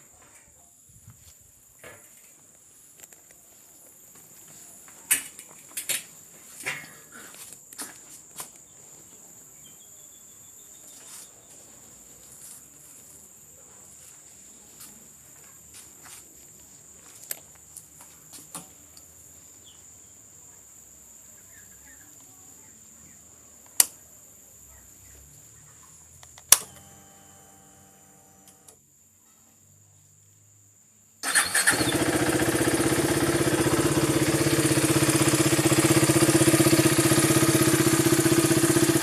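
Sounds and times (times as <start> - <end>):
insects droning: 0.0 - 39.0
sharp click: 23.7 - 24.0.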